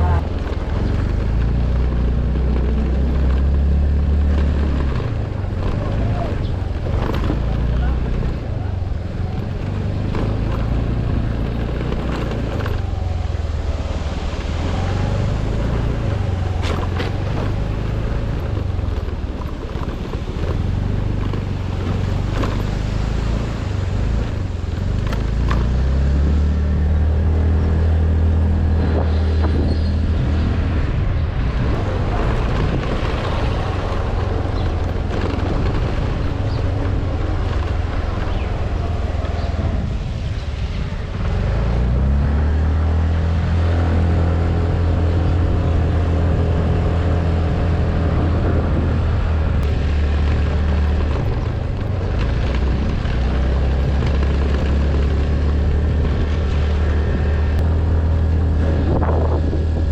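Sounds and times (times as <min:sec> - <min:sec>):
vehicle engine revving: 0:00.0 - 0:59.9
knocks and rattles from bumps: 0:00.1 - 0:13.4, 0:14.3 - 0:26.0.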